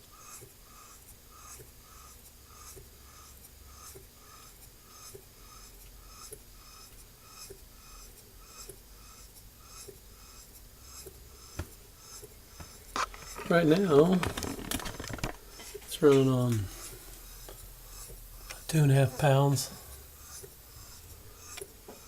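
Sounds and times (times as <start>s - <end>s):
model steam engine chuffing: 0.0s - 14.2s, 16.3s - 22.0s
light mechanical ticks: 3.8s - 7.6s, 16.1s - 18.7s, 20.2s - 22.0s.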